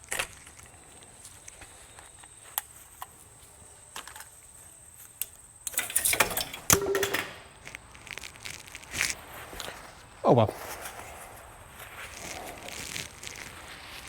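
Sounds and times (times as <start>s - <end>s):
sharp metallic clank: 5.7s - 7.6s
metal tools clinking: 5.7s - 7.8s
metallic clattering: 5.7s - 7.8s.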